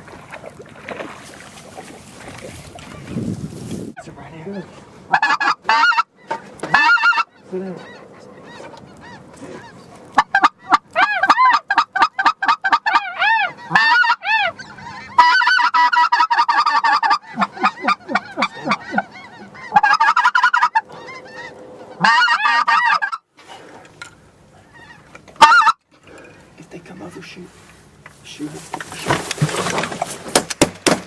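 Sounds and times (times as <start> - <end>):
goose call honks and clucks: 4.4 - 23.3, 24.6 - 25.8.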